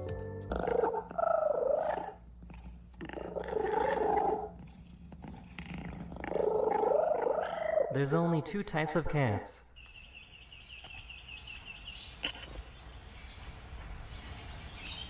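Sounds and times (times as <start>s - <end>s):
cat purring: 1.1s - 7.8s.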